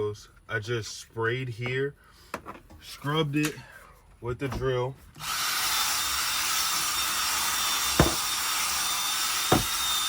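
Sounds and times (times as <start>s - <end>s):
power tool hissing whir: 5.2s - 10.0s
short knocks: 8.0s - 8.3s, 9.5s - 9.8s.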